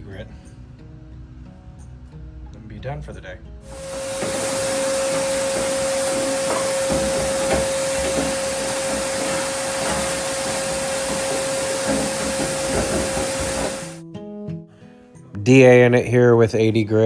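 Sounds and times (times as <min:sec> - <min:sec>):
shop vacuum running: 0:03.7 - 0:14.0.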